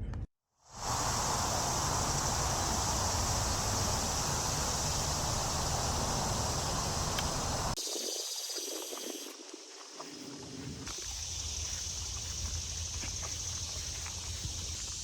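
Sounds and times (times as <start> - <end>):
insect hiss: 0.7 - 15.0
low wind rumble: 0.8 - 7.8
light footsteps on ground: 9.4 - 15.0.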